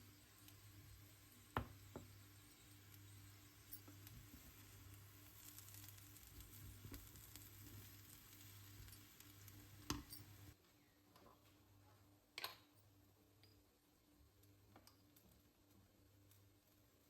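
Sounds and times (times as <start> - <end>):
food sizzling in a pan: 0.0 - 10.6.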